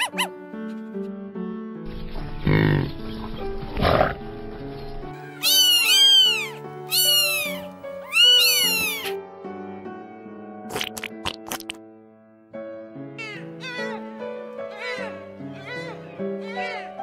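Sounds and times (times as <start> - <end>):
background music: 0.0 - 17.0
cat meowing: 5.2 - 9.2, 13.2 - 14.1, 14.7 - 17.0.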